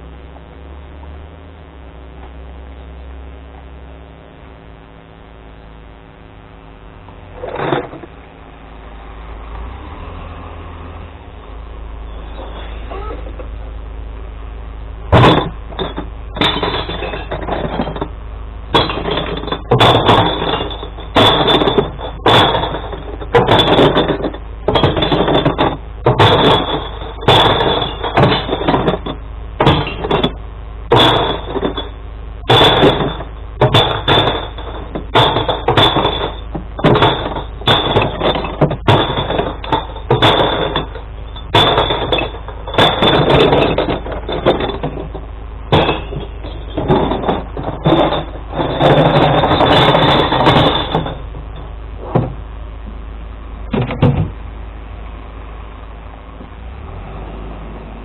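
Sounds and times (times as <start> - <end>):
glass bottles smashing: 15.2 - 18.1, 18.7 - 52.4.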